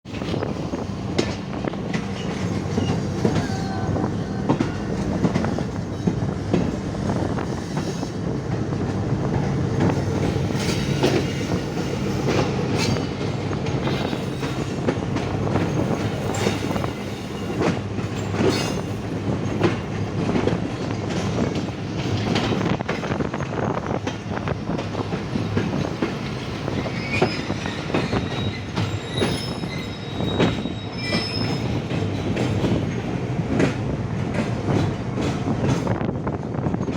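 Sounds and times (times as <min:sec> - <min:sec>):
train wheels clicking over rail joints: 0:00.1 - 0:36.9
high wheel squeals: 0:26.7 - 0:31.9.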